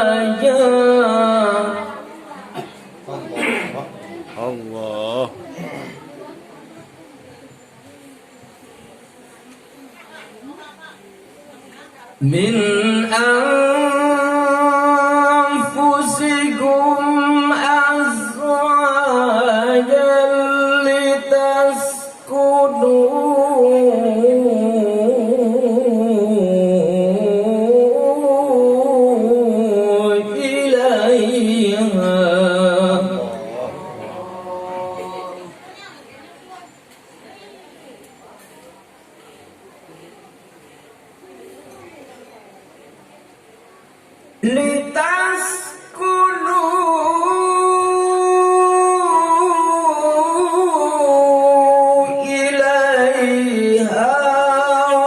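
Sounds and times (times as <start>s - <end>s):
man reciting melodically: 0.0s - 2.2s, 12.2s - 35.6s, 44.4s - 55.0s.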